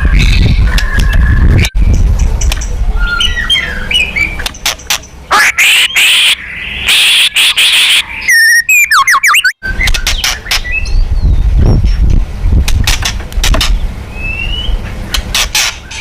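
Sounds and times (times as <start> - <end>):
bird whistled song: 2.6 - 4.6, 5.5 - 11.6, 14.1 - 14.8
bird harsh rasping calls: 3.0 - 10.9.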